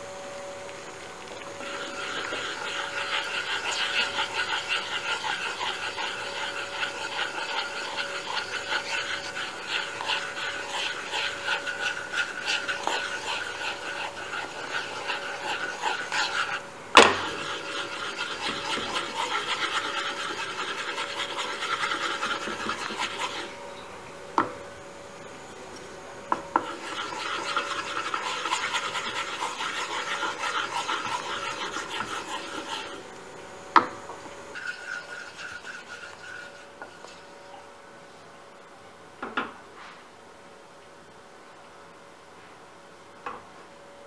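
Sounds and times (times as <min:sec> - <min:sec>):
rhythmic rasping strokes: 0:01.5 - 0:16.6, 0:17.2 - 0:23.6, 0:26.5 - 0:33.0.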